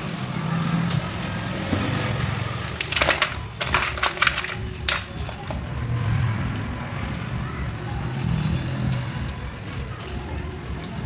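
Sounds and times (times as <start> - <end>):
metallic clicks and clatters: 2.7 - 7.3.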